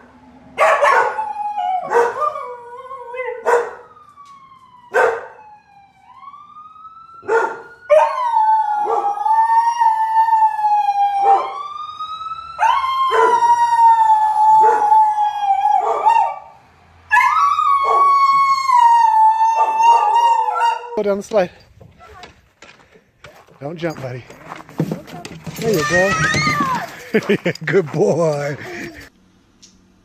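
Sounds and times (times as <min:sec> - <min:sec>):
dog barking: 0:00.6 - 0:01.2, 0:01.8 - 0:02.4, 0:03.4 - 0:03.8, 0:04.9 - 0:05.4, 0:07.2 - 0:08.2, 0:11.2 - 0:11.6, 0:12.6 - 0:13.4, 0:15.8 - 0:16.5, 0:19.9 - 0:21.0
dog howling: 0:00.6 - 0:03.9, 0:07.2 - 0:11.7, 0:12.6 - 0:16.5, 0:17.1 - 0:21.0.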